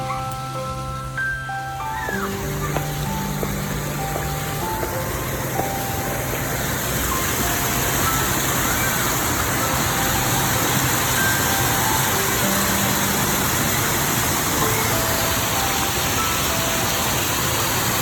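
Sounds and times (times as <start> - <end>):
faint background music: 0.0 - 18.0
water falling over stonework: 0.4 - 18.0.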